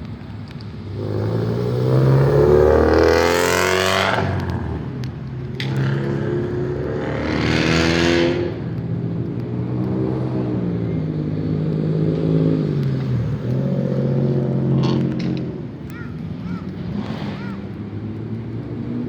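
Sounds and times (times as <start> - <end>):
car engine revving: 0.8 - 8.7
exhaust rush: 0.8 - 8.8.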